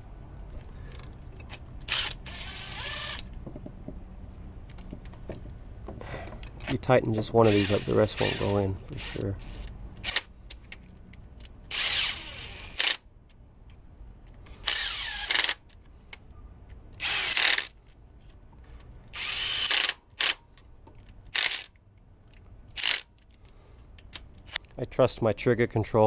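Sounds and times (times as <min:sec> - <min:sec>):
impact driver whirring: 0:01.9 - 0:03.3, 0:07.4 - 0:10.3, 0:11.7 - 0:13.0, 0:14.6 - 0:15.6, 0:17.0 - 0:17.8, 0:19.1 - 0:20.4, 0:21.4 - 0:21.8.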